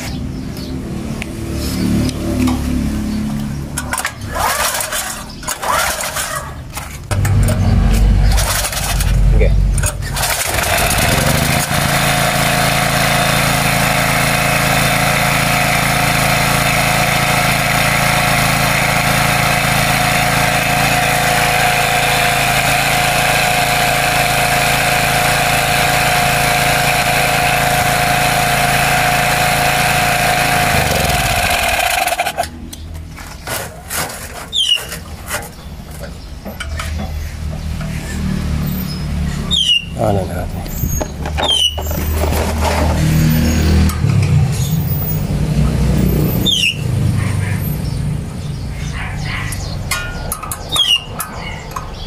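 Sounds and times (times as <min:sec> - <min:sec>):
small generator engine running: 0:03.6 - 0:32.6.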